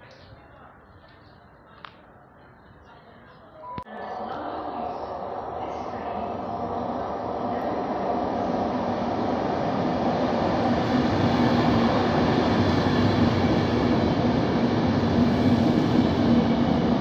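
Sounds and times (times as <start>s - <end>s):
electric train approaching: 3.9s - 17.0s.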